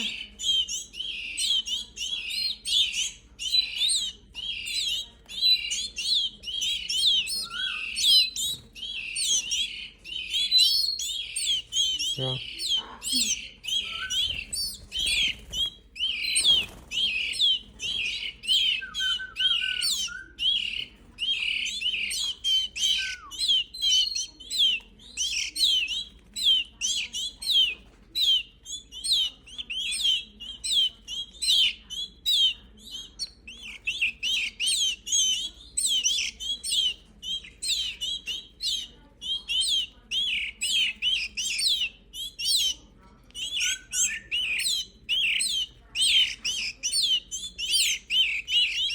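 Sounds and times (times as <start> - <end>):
bird chicks chirping: 0.0 - 48.9.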